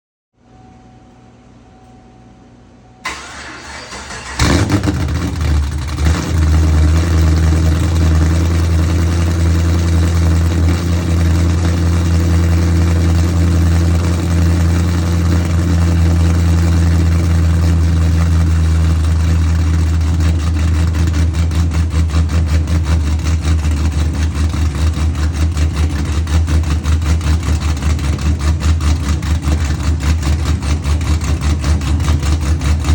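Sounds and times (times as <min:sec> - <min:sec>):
starter motor cranking: 0:03.1 - 0:05.5
car engine loud lumpy idle: 0:04.4 - 0:32.9.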